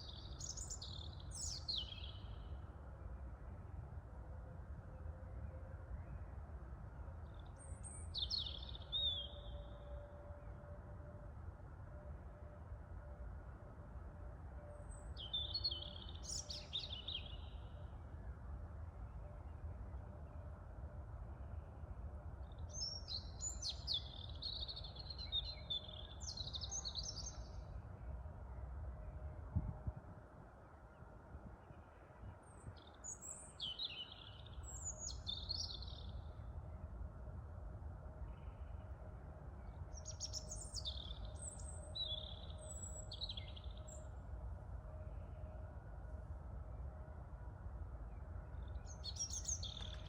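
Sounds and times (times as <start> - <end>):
songbird chirping and trilling: 0.0 - 2.6, 7.3 - 10.0, 14.8 - 17.9, 22.4 - 27.8, 31.6 - 36.8, 39.6 - 44.2, 48.1 - 50.0.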